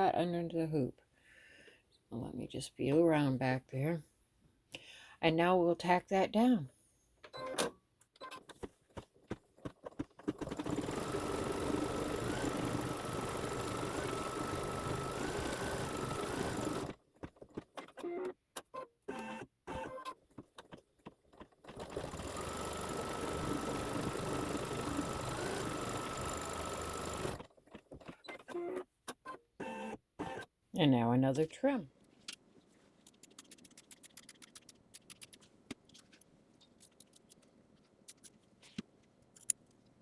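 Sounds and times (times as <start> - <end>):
embroidery machine stitching: 10.0 - 17.0, 21.6 - 28.8
machine clicks: 10.2 - 16.9
faint motor whine: 10.5 - 16.9, 22.0 - 27.4.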